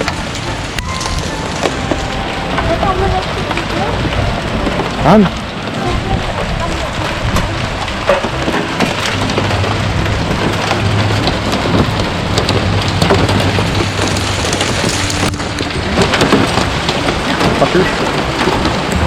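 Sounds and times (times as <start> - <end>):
hailstones striking: 0.0 - 19.0
heavy rain: 0.0 - 19.0.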